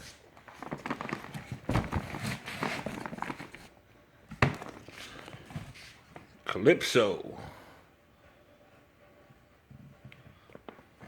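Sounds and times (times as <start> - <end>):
cardboard boxes being handled: 0.5 - 3.7
box thump: 1.6 - 2.4.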